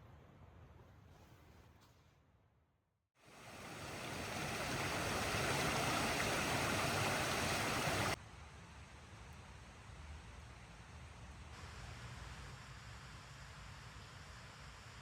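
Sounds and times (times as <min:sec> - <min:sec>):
faint hiss: 0:03.2 - 0:08.2
steady rushing noise: 0:03.3 - 0:08.2.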